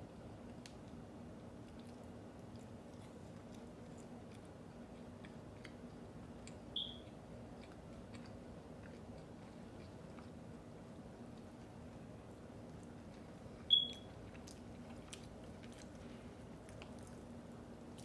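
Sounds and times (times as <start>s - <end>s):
steady low hum: 0.0s - 18.0s
person chewing food: 0.4s - 18.0s
mouth clicks and crunches: 12.7s - 18.0s.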